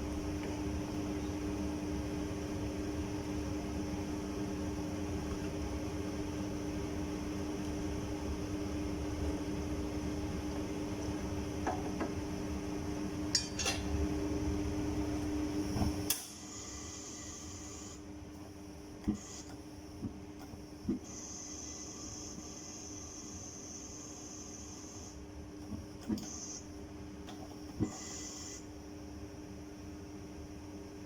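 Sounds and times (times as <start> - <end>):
cookware clinking: 13.4 - 13.8.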